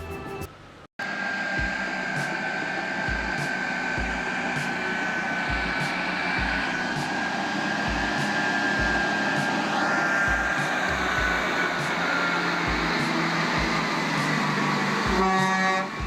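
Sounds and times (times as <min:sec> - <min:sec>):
heavy vehicle engine running: 0:00.0 - 0:16.0
high whine: 0:00.0 - 0:16.0
low thuds: 0:05.5 - 0:07.0, 0:07.9 - 0:09.5, 0:10.3 - 0:11.5, 0:12.7 - 0:13.9.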